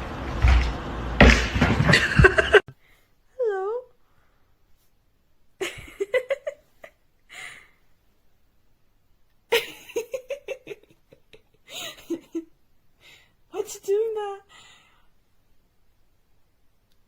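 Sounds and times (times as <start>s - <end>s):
person laughing: 1.9s - 2.7s, 5.6s - 7.0s, 9.5s - 12.5s.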